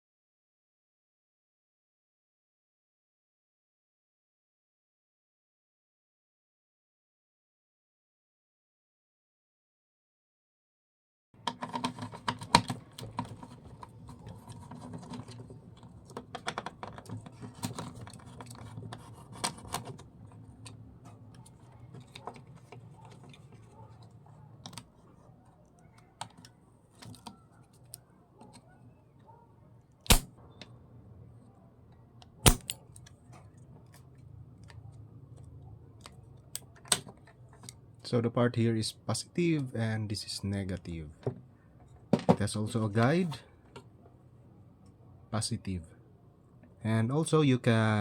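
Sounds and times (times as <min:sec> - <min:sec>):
sharp loud clicks: 0:30.1 - 0:30.3, 0:32.4 - 0:32.8.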